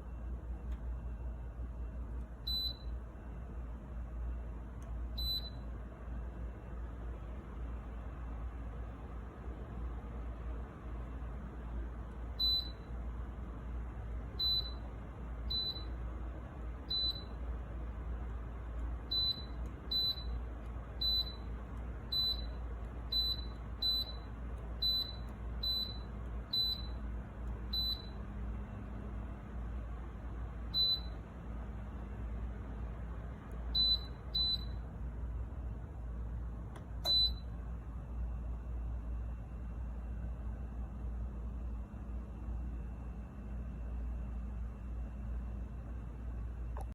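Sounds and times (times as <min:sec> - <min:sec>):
steady low hum: 0:00.0 - 0:46.9
short electronic beeps: 0:02.4 - 0:02.9, 0:05.2 - 0:05.7, 0:12.4 - 0:12.9, 0:14.4 - 0:14.9, 0:15.5 - 0:16.0, 0:16.8 - 0:17.4, 0:19.1 - 0:20.4, 0:21.0 - 0:27.0, 0:27.7 - 0:28.2, 0:30.7 - 0:31.2, 0:33.8 - 0:34.8, 0:37.0 - 0:37.5.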